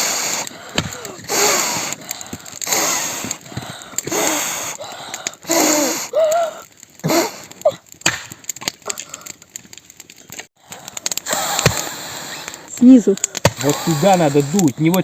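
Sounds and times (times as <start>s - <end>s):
person blowing breathy puffs: 0.0s - 7.6s, 10.8s - 14.7s
tinder clicking and snapping: 0.0s - 15.0s.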